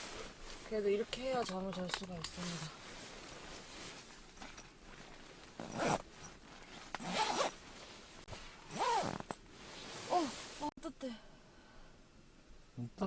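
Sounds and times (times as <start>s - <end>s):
zipper being pulled shut: 5.6s - 7.6s, 8.6s - 9.4s.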